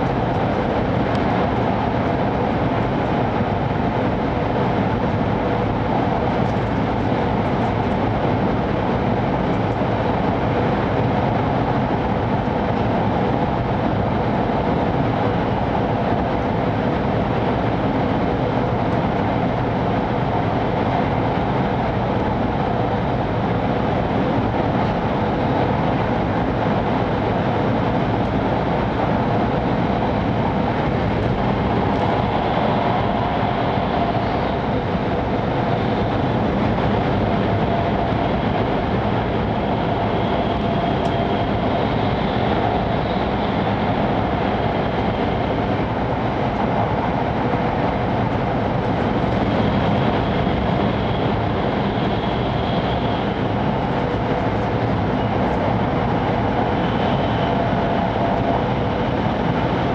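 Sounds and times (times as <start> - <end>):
train cabin rushing noise: 30.0 - 45.3.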